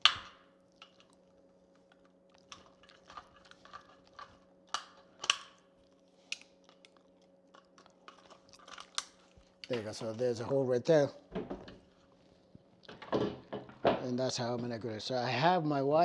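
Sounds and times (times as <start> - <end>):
plastic snapping with wire cutters: 4.7 - 5.6.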